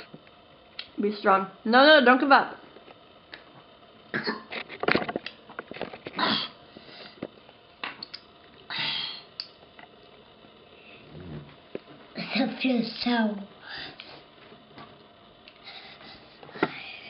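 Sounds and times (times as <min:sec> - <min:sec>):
child sniffing and huffing: 0:15.6 - 0:17.0.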